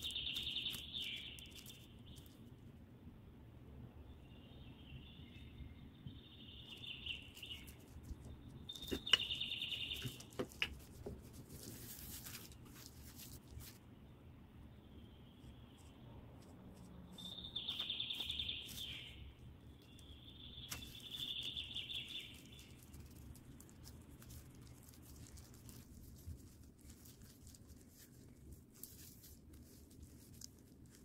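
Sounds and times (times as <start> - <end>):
faint chirping trills: 0.0 - 2.6, 4.0 - 31.0.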